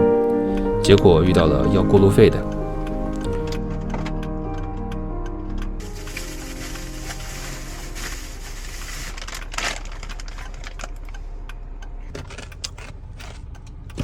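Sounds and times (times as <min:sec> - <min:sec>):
car engine running: 0:04.7 - 0:14.0.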